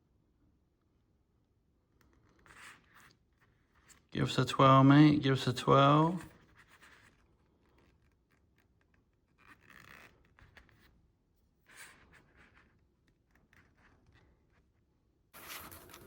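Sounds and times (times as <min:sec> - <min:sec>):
hands scratching and rubbing: 0:15.4 - 0:16.0.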